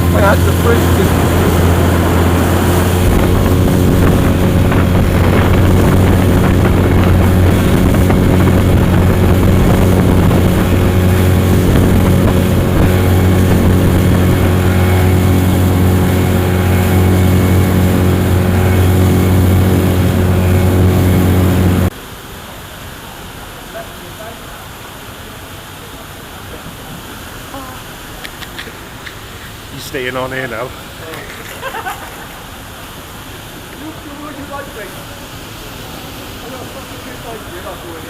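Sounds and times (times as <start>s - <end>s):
outboard motor running: 0.0s - 21.9s.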